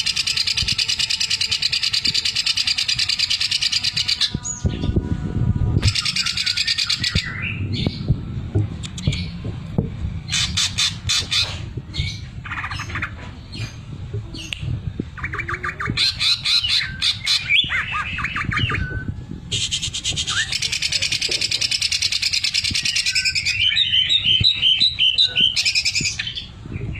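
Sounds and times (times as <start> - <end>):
low rumble: 2.8 - 26.9
bird chattering and whistling: 5.8 - 7.9, 15.2 - 26.9.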